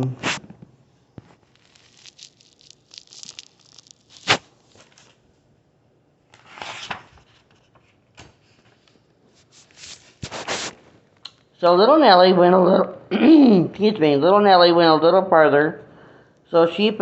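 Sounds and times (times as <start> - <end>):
paper pages rustling: 1.2 - 5.2, 6.3 - 11.0.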